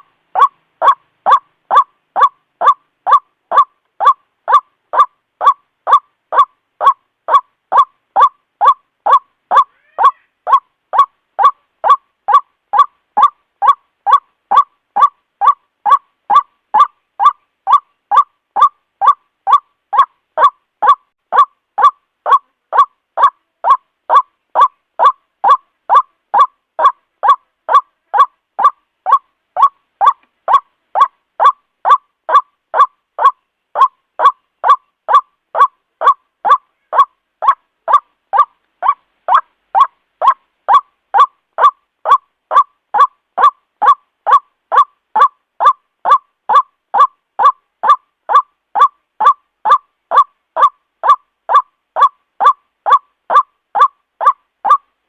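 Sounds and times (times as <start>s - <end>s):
waterhen kwak calls: 0.0s - 54.8s.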